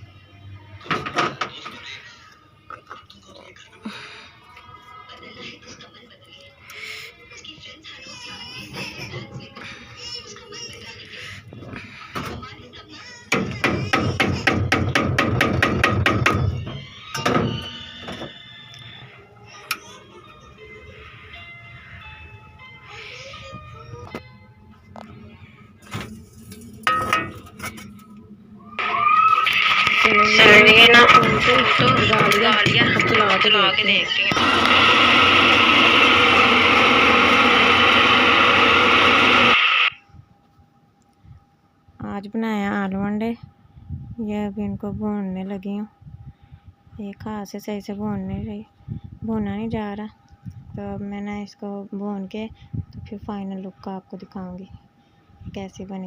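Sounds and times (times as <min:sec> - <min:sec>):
hammer knocking on metal part: 0:13.3 - 0:16.6.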